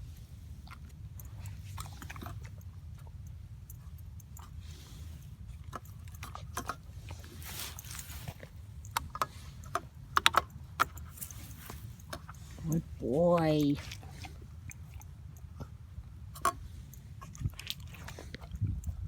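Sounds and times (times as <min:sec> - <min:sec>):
light clicks and jingling: 0:00.7 - 0:19.0
wind rumble on microphone: 0:16.0 - 0:19.0.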